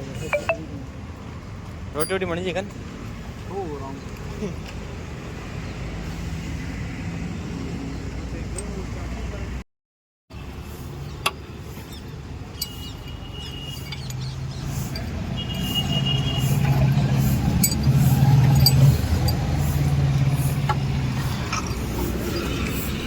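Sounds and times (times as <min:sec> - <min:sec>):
vehicle engine humming: 0:10.3 - 0:23.0.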